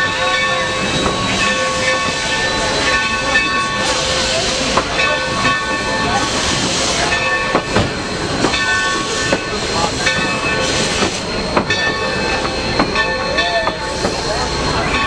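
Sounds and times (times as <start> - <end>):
train rushing noise: 0.0 - 15.0
train wheels knocking on rail joints: 4.5 - 14.3.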